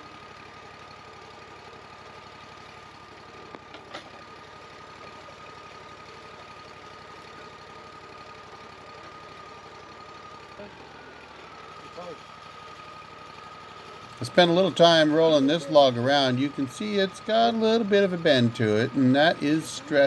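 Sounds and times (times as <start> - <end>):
engine idling: 0.0 - 20.0
thin steady whine: 9.9 - 20.0.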